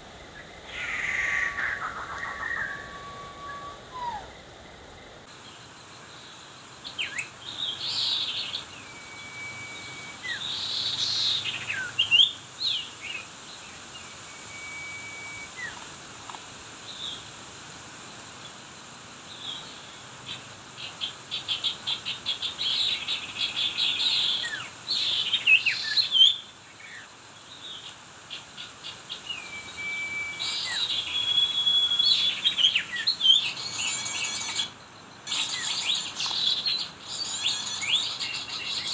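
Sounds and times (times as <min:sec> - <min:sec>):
bird whistles: 0:01.4 - 0:04.3, 0:08.5 - 0:12.3, 0:14.3 - 0:15.8, 0:29.3 - 0:34.7
small birds chirping: 0:05.2 - 0:17.4, 0:19.2 - 0:38.9
bird trilling: 0:29.4 - 0:38.9.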